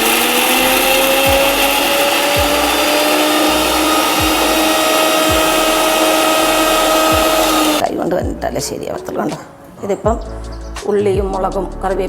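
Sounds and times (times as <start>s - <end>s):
mixer grinder whining: 0.0s - 7.8s.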